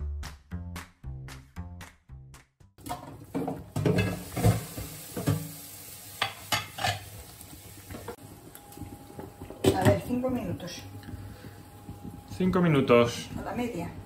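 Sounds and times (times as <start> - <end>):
utensils clinking on steel pot: 2.8 - 4.6, 6.2 - 7.1
sauce simmering hiss: 4.1 - 14.0.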